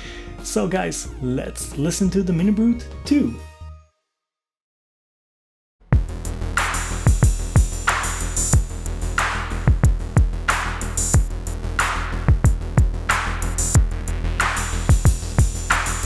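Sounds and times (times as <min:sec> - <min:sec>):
drum machine kicks: 0:06.0 - 0:08.8, 0:09.6 - 0:14.0, 0:14.9 - 0:16.0
synthesizer bass line: 0:06.0 - 0:16.0.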